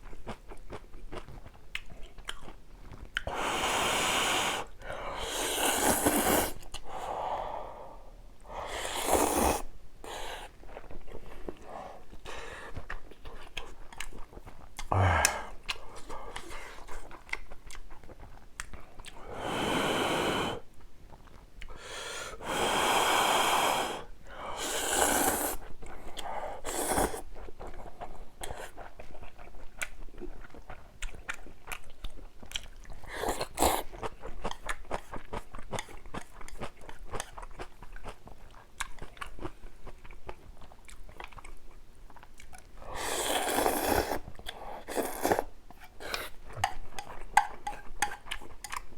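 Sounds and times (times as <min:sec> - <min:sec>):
wet chewing with crunchy bites: 0:00.0 - 0:03.3, 0:10.4 - 0:19.2, 0:27.2 - 0:48.9
noodle slurping: 0:03.3 - 0:06.6, 0:08.6 - 0:10.6, 0:24.6 - 0:25.7, 0:42.9 - 0:46.4.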